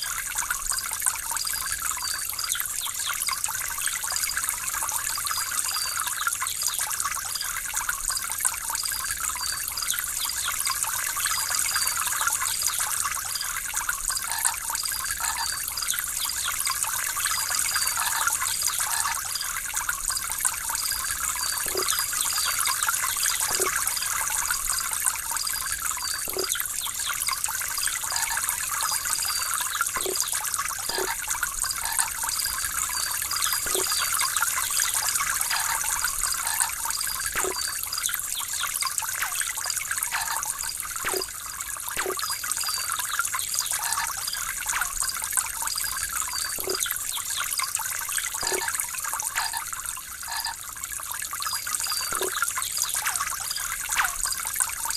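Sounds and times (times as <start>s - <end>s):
water trickling and babbling: 0.0s - 54.9s.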